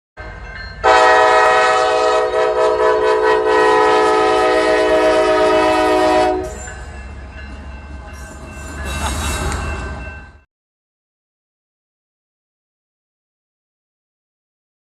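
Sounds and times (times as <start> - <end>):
diesel locomotive rumbling: 0.2 - 10.5
locomotive air horn blast: 0.8 - 6.6.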